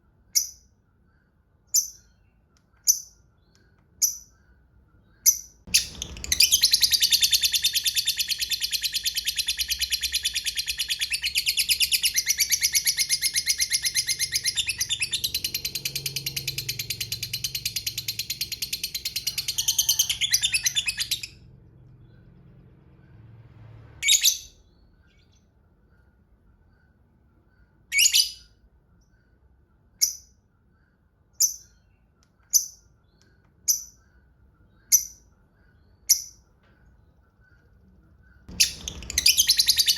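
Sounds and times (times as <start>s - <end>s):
lovebird sharp chirps: 1.7s - 19.7s, 38.3s - 39.9s.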